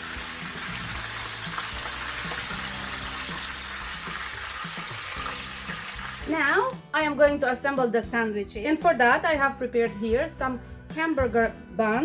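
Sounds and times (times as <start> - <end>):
chicken sizzling in hot oil: 0.0 - 6.7.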